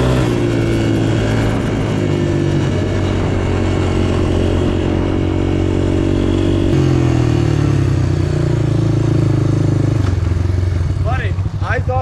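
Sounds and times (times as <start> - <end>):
small off-road engine running: 0.0 - 12.0.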